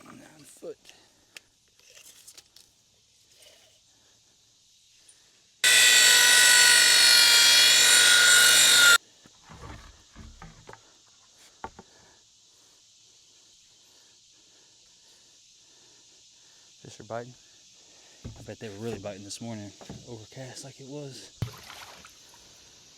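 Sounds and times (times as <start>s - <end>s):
power saw cutting wood: 5.6s - 9.0s
wood knocks: 18.3s - 19.0s.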